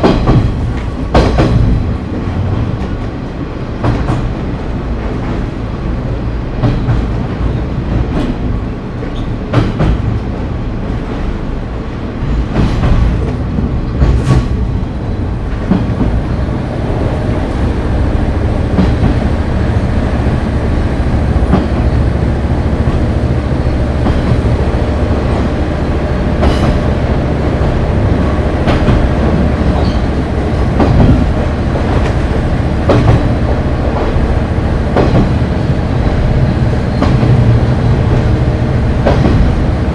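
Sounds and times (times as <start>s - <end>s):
railcar running rumble and engine hum: 0.0s - 39.9s
wheels clicking over rail joints: 21.1s - 25.7s, 26.3s - 39.8s.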